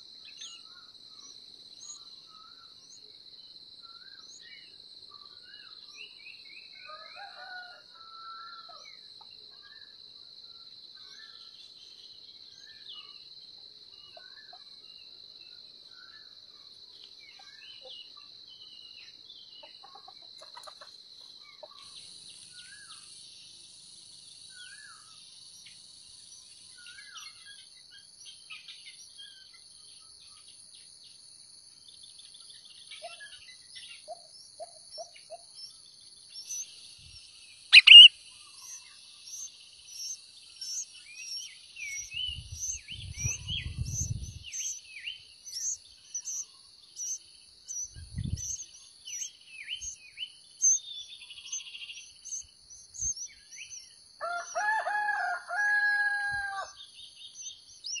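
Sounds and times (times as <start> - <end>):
rooster crowing: 6.9 - 8.8, 54.2 - 56.8
steady high insect buzz: 8.8 - 55.6
nestlings begging with high cheeps: 37.8 - 38.1
loud sharp bird chirp: 37.8 - 44.8, 45.5 - 50.0.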